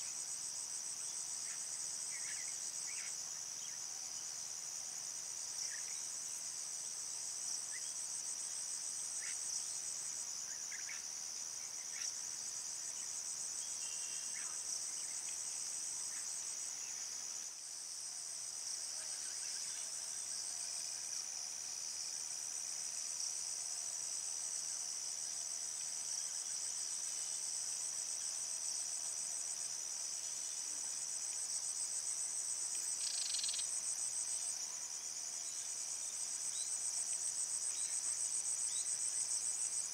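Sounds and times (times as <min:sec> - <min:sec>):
faint insect chirps: 0:00.0 - 0:39.9
crickets and insects trilling: 0:22.9 - 0:39.9.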